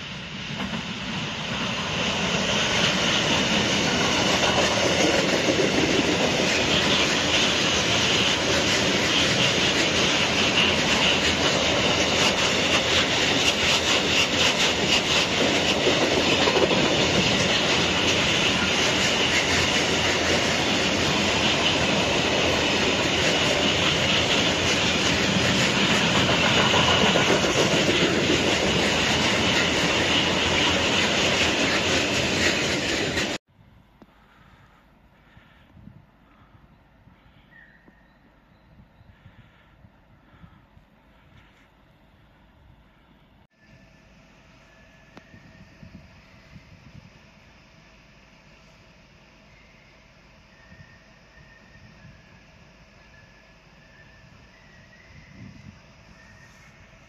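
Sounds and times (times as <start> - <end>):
freight train wheels clattering: 0.0 - 33.4.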